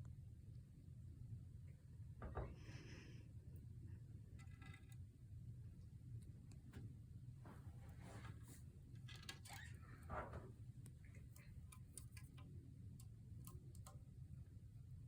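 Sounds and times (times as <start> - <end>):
ceiling fan humming: 0.0 - 15.0
small irregular clicks: 10.8 - 14.5.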